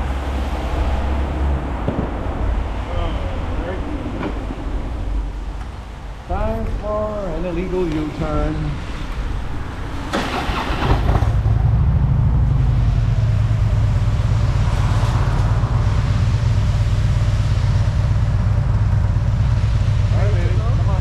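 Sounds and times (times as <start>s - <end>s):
motorcycle engine pulling away: 10.1s - 17.1s.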